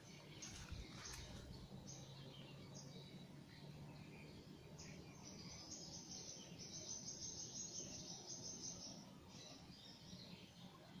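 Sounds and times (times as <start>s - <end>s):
birds chirping: 0.0s - 11.0s
low steady background hum: 0.0s - 11.0s.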